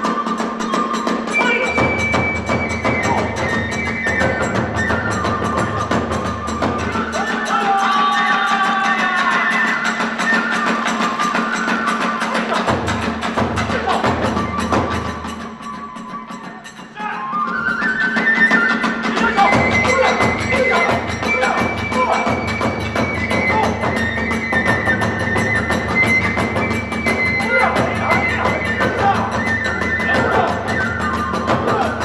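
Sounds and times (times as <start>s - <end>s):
hand cymbals struck rapidly: 0.0s - 17.0s, 18.6s - 32.0s
bamboo flute: 0.0s - 32.0s
taiko drums: 0.0s - 32.0s.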